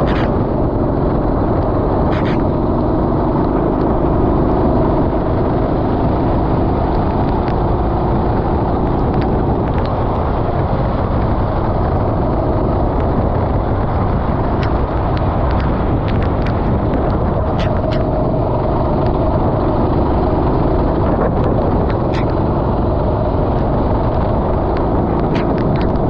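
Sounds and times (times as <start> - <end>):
small clicks: 0.0 - 0.3, 1.6 - 2.5, 14.6 - 18.1, 21.4 - 22.4, 24.7 - 26.0
kart engine running: 0.0 - 26.0
wind and road noise: 0.0 - 26.0.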